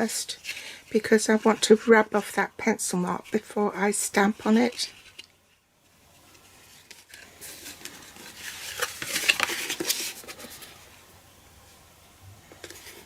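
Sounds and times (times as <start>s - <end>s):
cardstock rustling: 6.6s - 10.9s.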